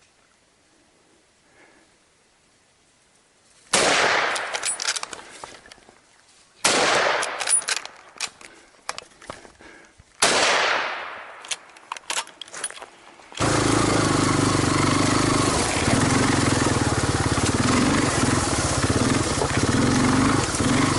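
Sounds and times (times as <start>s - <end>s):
gunshot with echo: 3.7s - 4.6s, 6.6s - 7.4s, 10.2s - 11.4s
sharp clicks: 6.9s - 9.4s.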